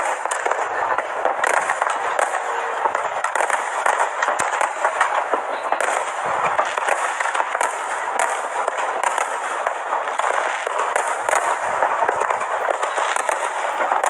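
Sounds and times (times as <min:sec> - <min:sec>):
fireworks crackling: 0:00.0 - 0:14.0.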